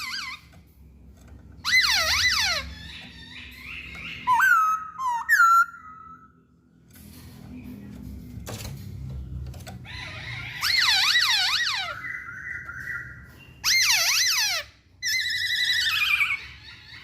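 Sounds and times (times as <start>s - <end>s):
bird singing whistled phrases: 4.0s - 6.3s.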